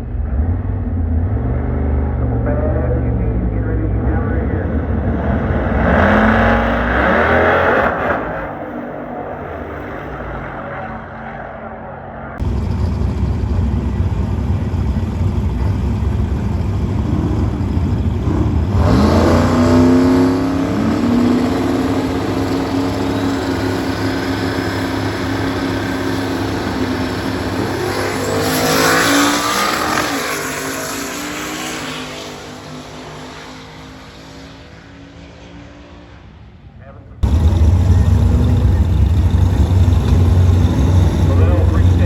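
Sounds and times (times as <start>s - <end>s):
drag car engines at full throttle: 0.0s - 42.0s.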